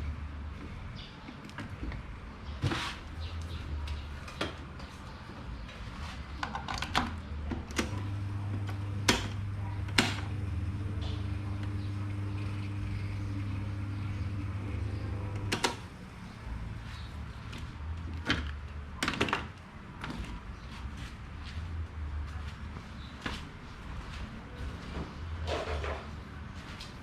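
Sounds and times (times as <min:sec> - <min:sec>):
electric fan motor humming: 0:07.2 - 0:16.6.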